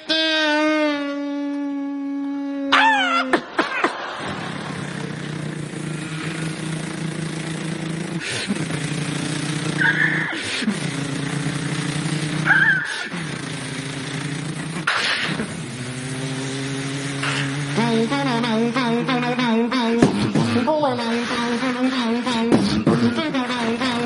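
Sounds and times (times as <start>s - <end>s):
person imitating motorcycle engine: 0.0s - 24.0s
short high squeals: 9.4s - 10.7s, 11.4s - 18.5s.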